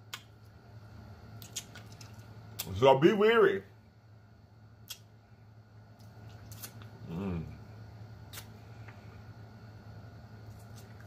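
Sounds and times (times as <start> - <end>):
person chewing: 6.1 - 6.9
person humming: 7.0 - 7.6.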